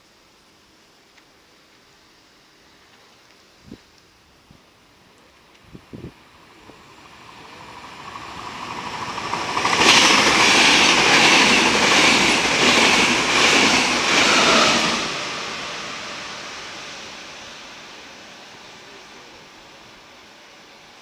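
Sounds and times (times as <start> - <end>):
train rushing past: 6.3 - 20.2
wheels clacking over rails: 7.3 - 15.2.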